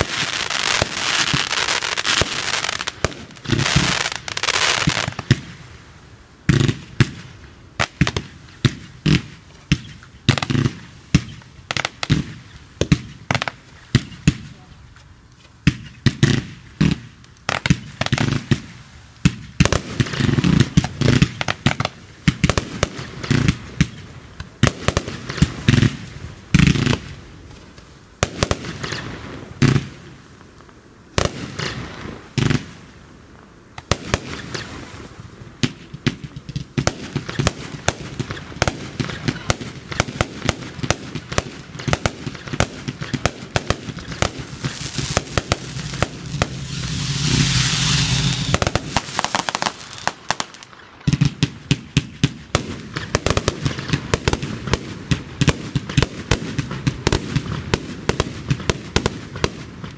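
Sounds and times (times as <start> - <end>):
fireworks bangs: 0.0 - 5.7, 6.4 - 14.8, 15.6 - 30.2, 31.1 - 33.0, 33.8 - 59.9
hissing rush: 44.1 - 50.4.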